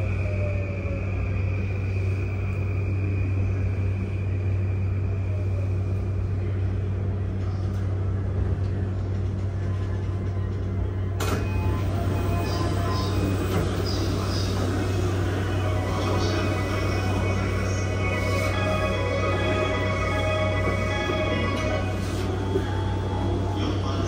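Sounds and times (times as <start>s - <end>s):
faint high whine: 0.0s - 6.8s
train interior hum and rumble: 0.0s - 24.0s.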